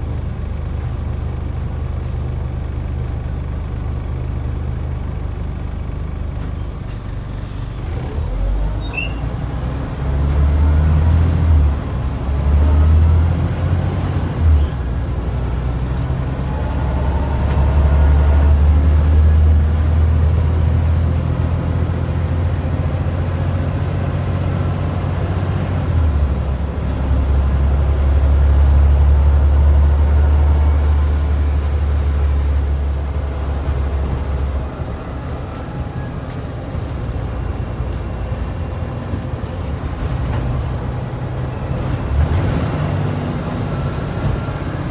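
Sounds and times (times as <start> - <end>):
bus diesel engine: 0.0 - 44.9
brief high squeaks: 7.9 - 10.5.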